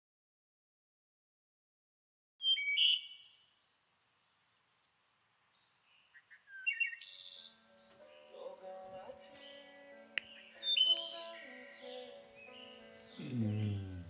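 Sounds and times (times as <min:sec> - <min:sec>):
songbirds chirping and trilling: 0:02.4 - 0:14.0
soft music: 0:07.3 - 0:14.0.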